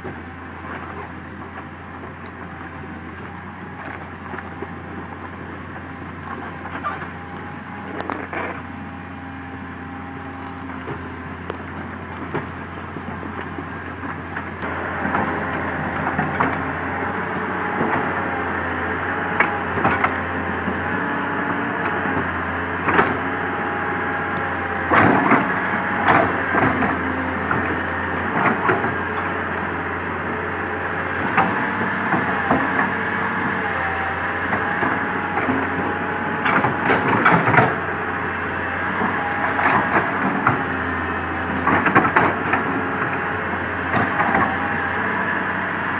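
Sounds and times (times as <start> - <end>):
excavator diesel engine: 0.0 - 45.9
hydraulic whine: 14.5 - 45.9.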